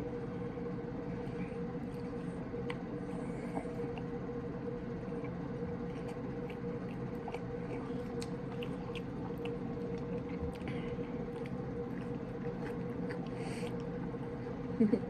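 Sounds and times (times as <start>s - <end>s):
steady low hum: 0.0s - 15.0s
wet chewing clicks and smacks: 5.1s - 14.4s.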